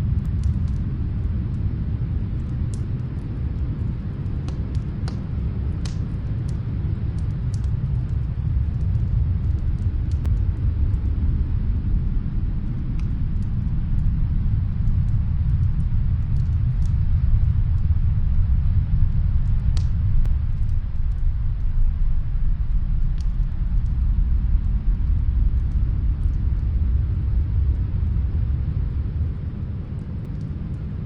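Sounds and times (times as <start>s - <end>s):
snowstorm wind rumbling: 0.0s - 31.0s
wood fire crackling: 0.0s - 31.0s.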